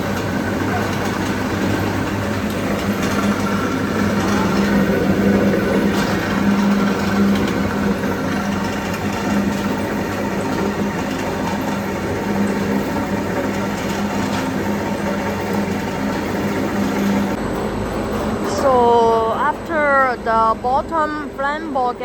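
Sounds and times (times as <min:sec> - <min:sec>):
machine hum: 0:00.0 - 0:22.0
noisy rush: 0:00.0 - 0:22.0.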